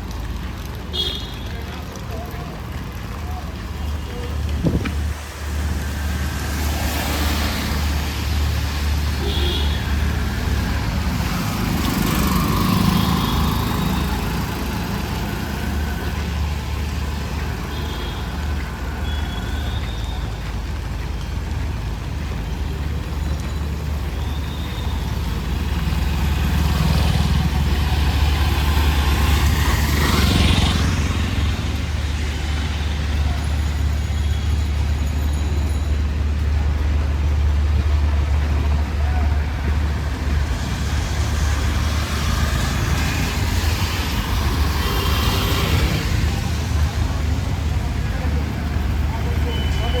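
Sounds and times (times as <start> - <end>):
vehicles passing: 0.0 - 50.0.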